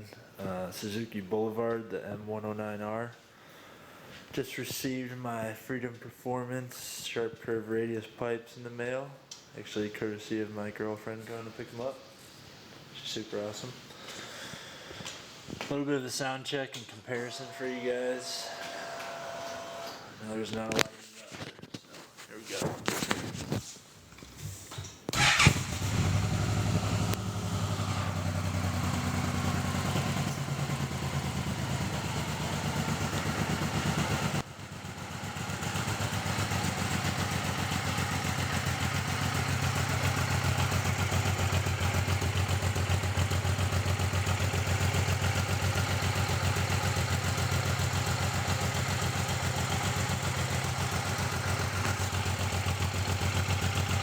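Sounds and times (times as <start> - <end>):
motorcycle engine idling: 25.1 - 54.0.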